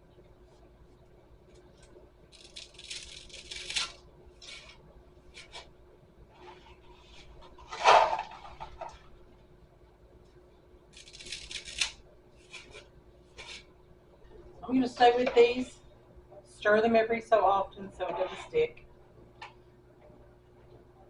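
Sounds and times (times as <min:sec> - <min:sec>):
faint steady hum: 0:00.0 - 0:21.0
dry spaghetti snapping: 0:01.5 - 0:05.6, 0:10.9 - 0:12.8.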